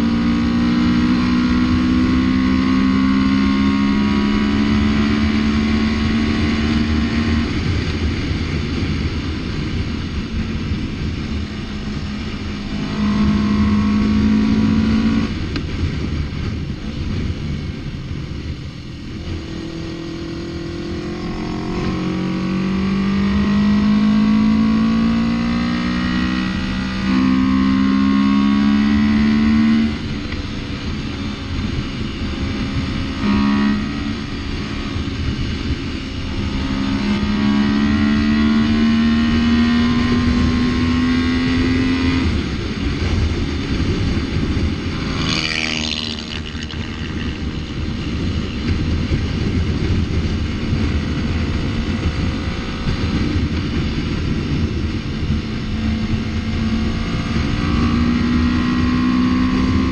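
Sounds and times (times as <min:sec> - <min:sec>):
motorcycle engine accelerating: 0:00.0 - 0:59.9
road and wind noise: 0:00.0 - 0:59.9.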